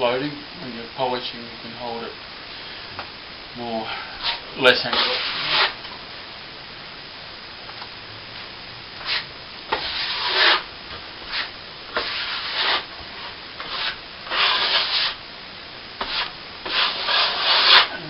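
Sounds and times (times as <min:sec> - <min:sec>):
trowel scraping cement: 0:09.0 - 0:10.6, 0:11.3 - 0:15.2, 0:16.0 - 0:18.0.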